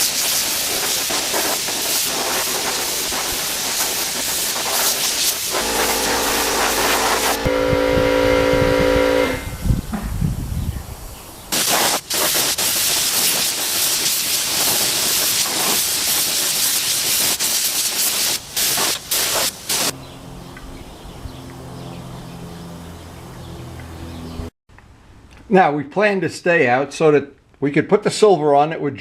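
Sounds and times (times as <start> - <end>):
paint spray gun hissing: 0.0 - 7.5, 11.5 - 19.9
steady multi-tone hum: 5.4 - 9.7
low rumble: 5.5 - 10.0.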